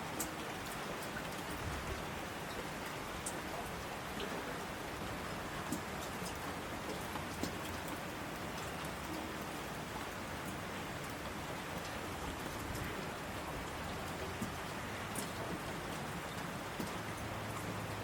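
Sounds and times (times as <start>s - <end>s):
steady rain hiss: 0.0s - 18.0s
single raindrops ticking: 0.1s - 1.5s, 3.2s - 3.6s, 5.5s - 9.5s, 13.6s - 18.0s.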